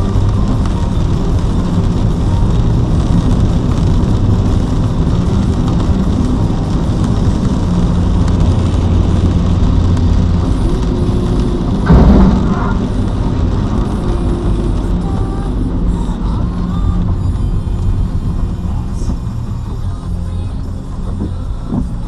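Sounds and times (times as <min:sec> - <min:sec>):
vehicle rumble: 0:00.0 - 0:22.0
sudden loud noise: 0:09.7 - 0:16.0.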